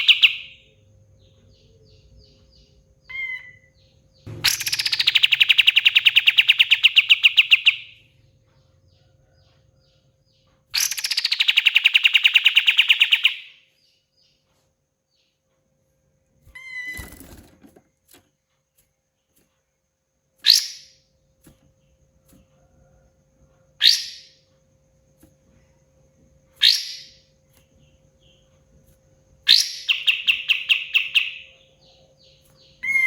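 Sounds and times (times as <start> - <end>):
songbird rapid trill: 0.0 - 9.4, 10.7 - 13.7, 23.8 - 24.5, 26.6 - 33.0
short bird chirps: 3.1 - 7.9
sharp falling bird call: 4.3 - 7.5.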